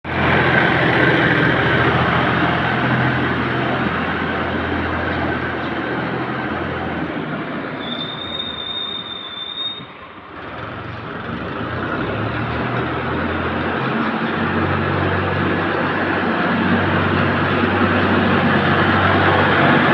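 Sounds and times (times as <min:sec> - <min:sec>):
high squeal: 0:07.7 - 0:10.1.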